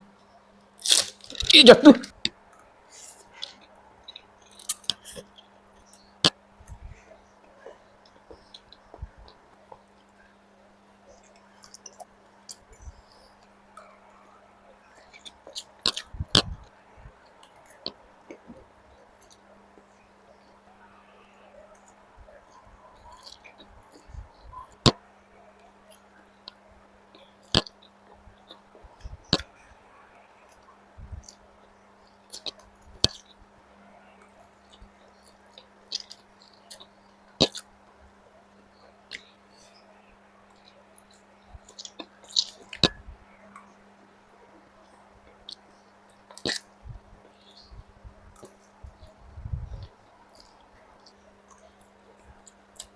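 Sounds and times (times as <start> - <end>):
faint steady hum: 0.0 - 52.9
chewing noodles: 3.0 - 6.1, 11.1 - 19.5, 21.1 - 24.9, 32.2 - 33.4, 34.2 - 37.8, 40.5 - 43.0, 49.8 - 52.9
mouth clicks and smacks: 3.0 - 7.0, 15.0 - 16.7, 23.0 - 25.0, 27.2 - 29.6, 32.3 - 33.4, 34.6 - 37.7, 39.1 - 39.7, 40.5 - 43.6, 45.3 - 52.9.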